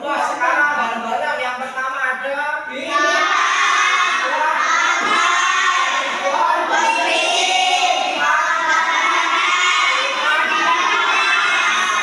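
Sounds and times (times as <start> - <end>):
children shouting and chanting: 2.7 - 12.0.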